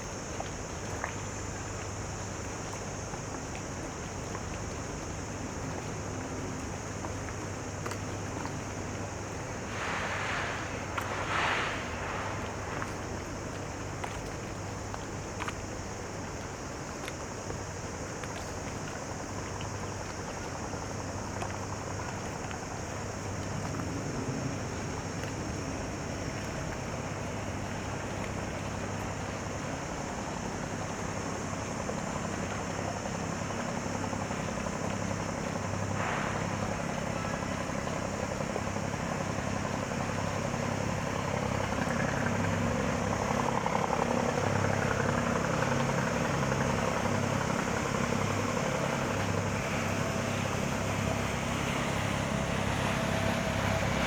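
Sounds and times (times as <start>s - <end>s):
boat engines droning: 0.0s - 54.0s
high hiss: 8.2s - 15.2s, 34.9s - 54.0s
low hum: 9.3s - 14.6s.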